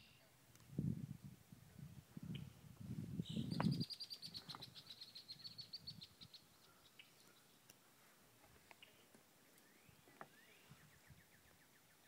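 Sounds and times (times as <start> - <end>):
songbird trill: 0.0 - 0.4, 3.2 - 8.0, 8.6 - 12.0.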